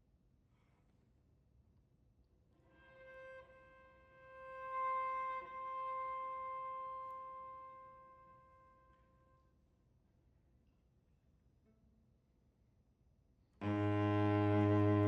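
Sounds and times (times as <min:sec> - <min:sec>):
bowed cello note: 0:13.6 - 0:15.0.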